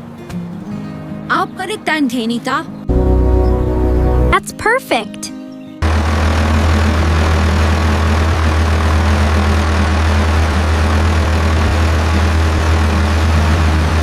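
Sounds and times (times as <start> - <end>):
tractor engine droning: 2.9 - 4.4, 5.8 - 14.0.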